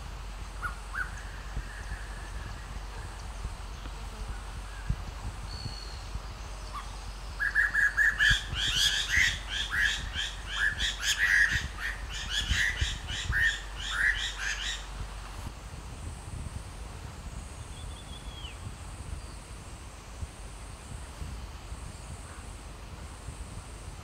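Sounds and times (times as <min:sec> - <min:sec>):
bird chirping rapidly: 0:06.8 - 0:14.8.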